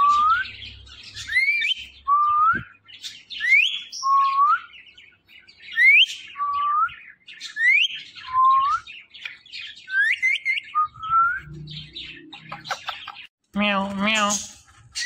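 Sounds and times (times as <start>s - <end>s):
soft parrot chatter: 12.1s - 13.3s.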